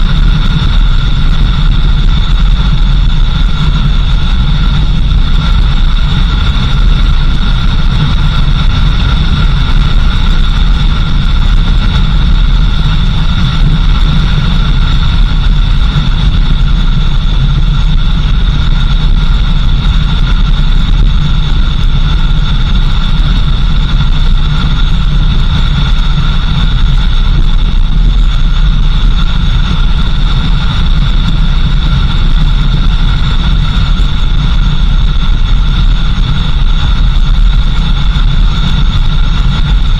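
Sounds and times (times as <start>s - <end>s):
high-pitched whine: 0.0s - 39.9s
vehicle engine rumble: 0.0s - 39.9s.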